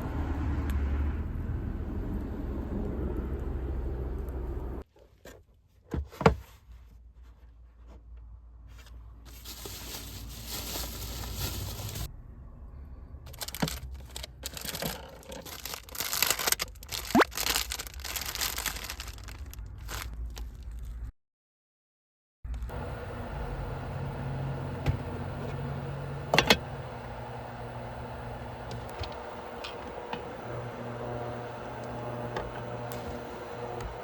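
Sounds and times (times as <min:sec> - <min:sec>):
tearing and crinkling: 0:09.3 - 0:12.1, 0:13.3 - 0:21.1.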